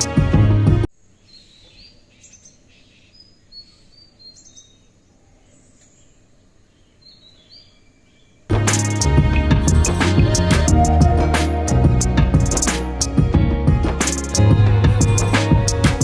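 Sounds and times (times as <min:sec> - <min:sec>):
music with drums: 0:00.0 - 0:00.9, 0:08.5 - 0:16.0
small birds chirping: 0:01.1 - 0:08.5.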